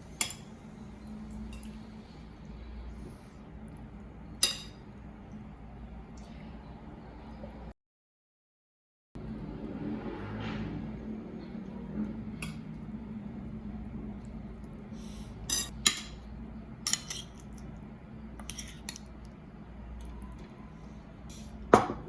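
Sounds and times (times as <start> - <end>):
faint hum: 0.0 - 7.7
utensils and dishes clinking: 15.4 - 17.7.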